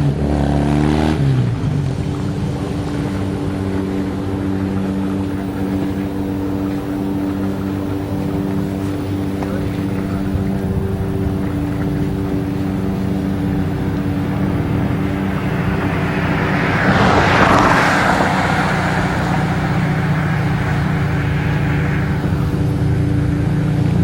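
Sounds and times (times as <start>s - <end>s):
motorcycle engine idling: 1.2s - 24.0s.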